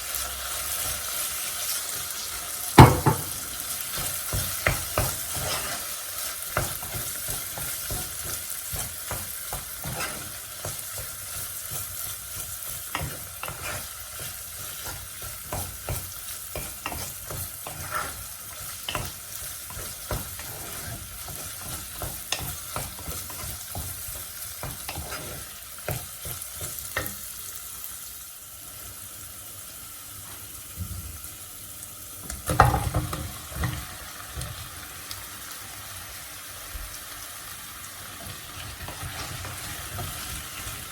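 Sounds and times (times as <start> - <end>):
food sizzling in a frying pan: 0.0 - 40.9
utensil scraping against pan: 3.9 - 27.2, 38.2 - 40.9.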